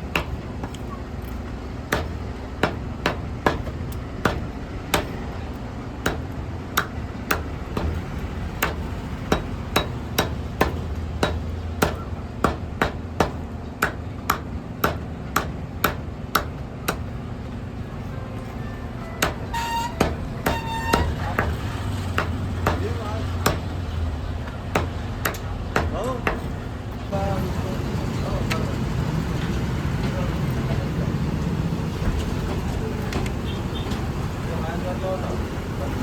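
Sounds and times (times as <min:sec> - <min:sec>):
cleaver chopping on a block: 0:00.0 - 0:00.9, 0:01.9 - 0:05.4, 0:06.0 - 0:17.1, 0:19.2 - 0:23.8, 0:24.4 - 0:26.6.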